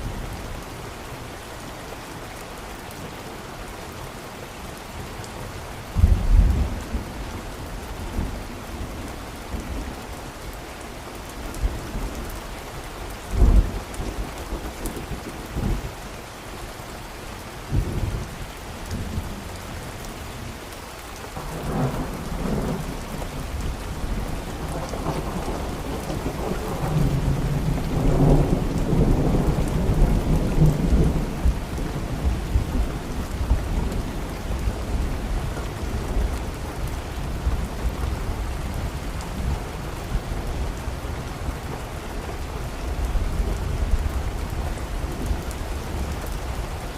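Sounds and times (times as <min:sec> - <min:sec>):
steady rain: 0:00.0 - 0:46.9
thunder rumbling: 0:21.4 - 0:40.7.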